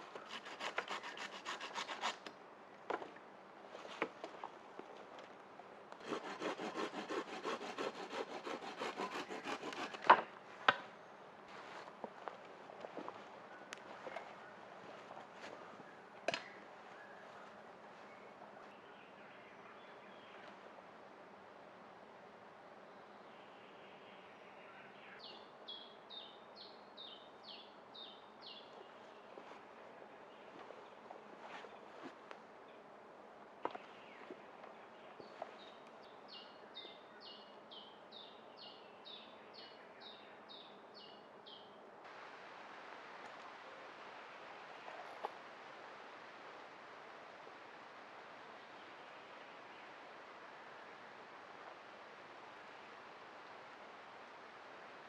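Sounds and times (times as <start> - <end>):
wood scraping strokes: 0.0 - 2.3, 6.0 - 10.9
faint forest hiss: 0.0 - 55.0.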